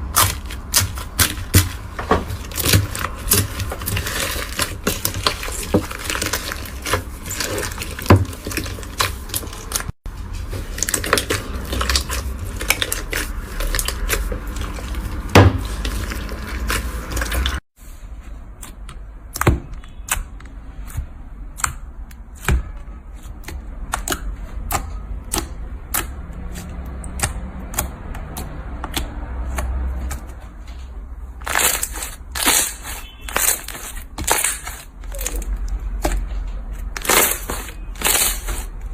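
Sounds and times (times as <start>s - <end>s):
slime crackling and popping: 10.7s - 17.6s, 31.4s - 36.2s, 36.9s - 38.7s.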